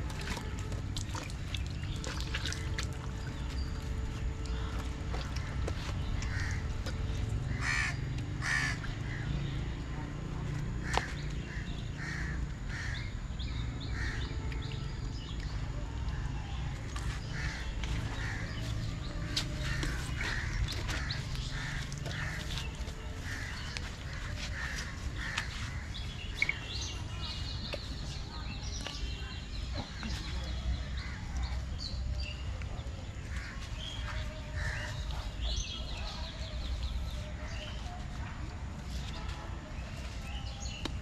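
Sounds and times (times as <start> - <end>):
steady low rumble: 0.0 - 37.5
birds harsh repeated calls: 1.2 - 10.0, 10.7 - 14.9, 16.9 - 31.6, 33.2 - 37.8.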